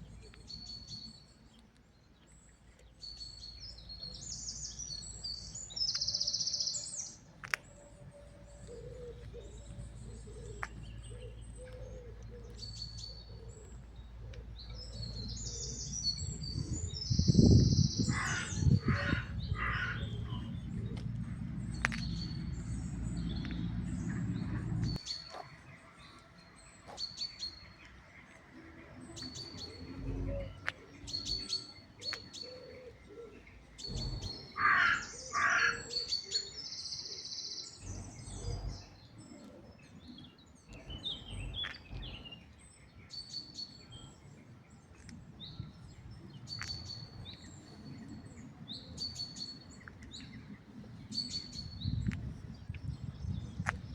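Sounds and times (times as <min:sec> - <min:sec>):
birds chirping: 0:00.0 - 0:53.9
harsh bird calls: 0:03.1 - 0:25.9, 0:28.6 - 0:39.6
low steady rumble: 0:13.7 - 0:25.0.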